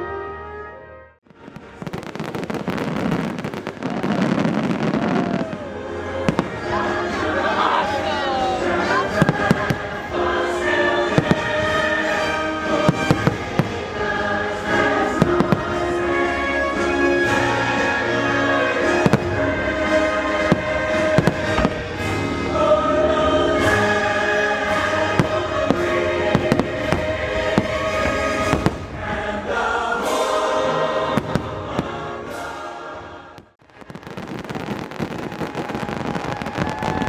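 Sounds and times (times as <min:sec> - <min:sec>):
crackle of fireworks: 0:01.3 - 0:08.2, 0:08.8 - 0:10.2, 0:11.1 - 0:15.9, 0:18.8 - 0:22.4, 0:23.6 - 0:29.0, 0:31.2 - 0:32.5, 0:33.4 - 0:37.0
fireworks bangs: 0:01.3 - 0:22.4, 0:23.6 - 0:32.7, 0:33.4 - 0:37.0
choir singing over show music: 0:02.0 - 0:33.6.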